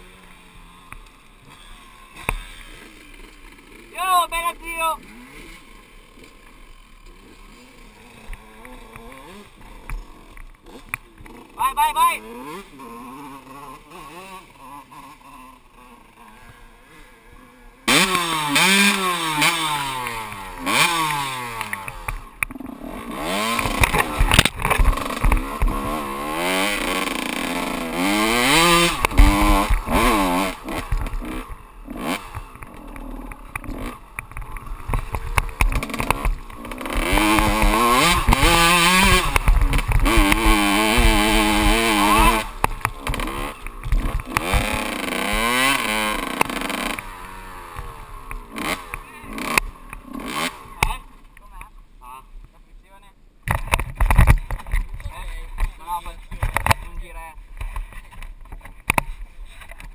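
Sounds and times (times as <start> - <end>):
dirt bike engine revving: 0.0 - 52.3, 53.5 - 59.9
bike knocking over rough ground: 53.5 - 59.9.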